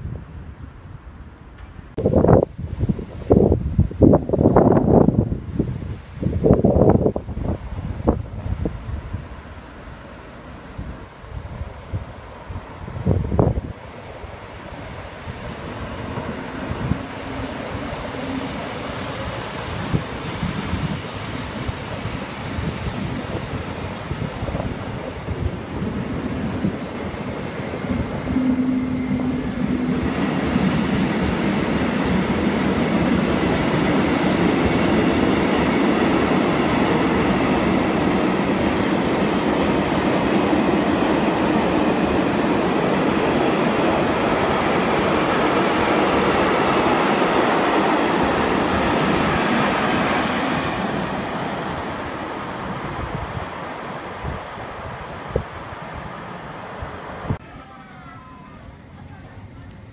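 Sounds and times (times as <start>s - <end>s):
train wheels rumbling on track: 0.0s - 59.9s.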